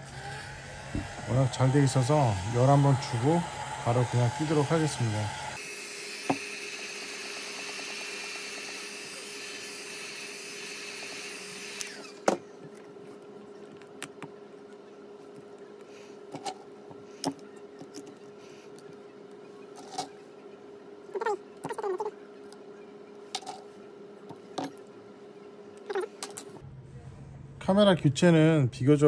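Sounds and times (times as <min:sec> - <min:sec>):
heat gun blowing: 0:00.0 - 0:12.3.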